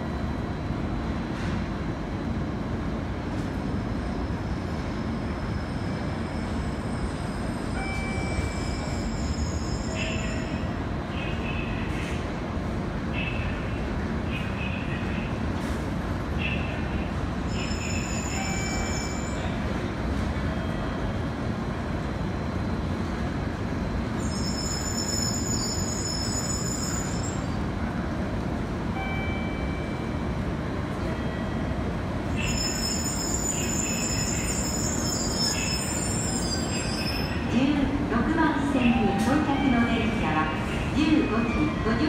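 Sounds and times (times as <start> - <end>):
train rumble: 0.0 - 42.0.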